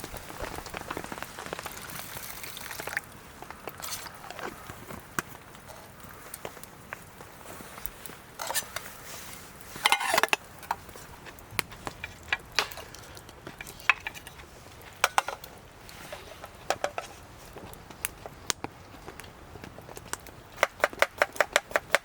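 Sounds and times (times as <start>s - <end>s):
metal cookware clinking: 8.4s - 8.8s, 9.8s - 10.8s.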